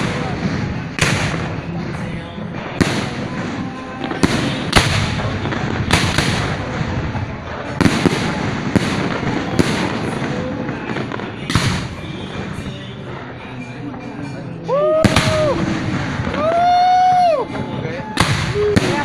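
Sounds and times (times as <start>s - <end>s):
firework shells bursting: 0.0s - 13.7s
rolling echo: 0.0s - 19.0s.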